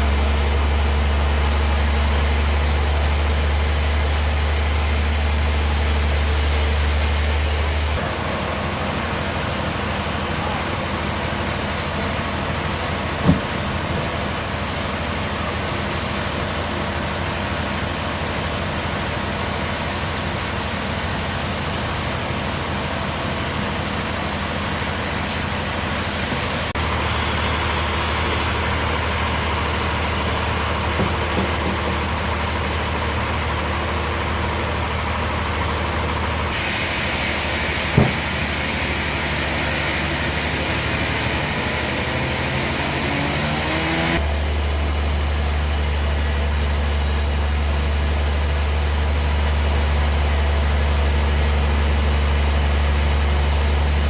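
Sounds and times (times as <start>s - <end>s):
sawmill machine hum: 0.0s - 54.0s
sharp knock: 13.2s - 13.5s, 37.9s - 38.4s
high hiss: 36.6s - 43.0s.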